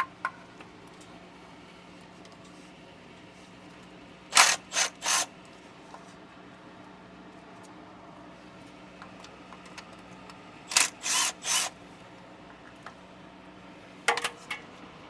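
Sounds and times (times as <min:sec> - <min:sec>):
hand ratchet strokes: 0:04.3 - 0:05.3, 0:10.7 - 0:11.7.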